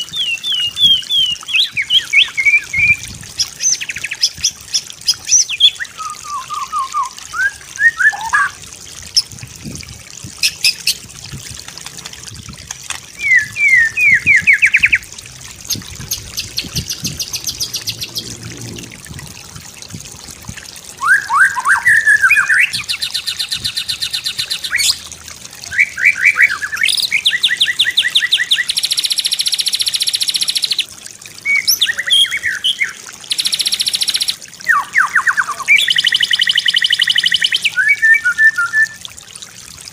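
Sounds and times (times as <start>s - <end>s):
bird singing whistles and trills: 0.0s - 8.6s, 13.2s - 15.0s, 21.0s - 25.0s, 25.6s - 30.8s, 31.4s - 39.0s.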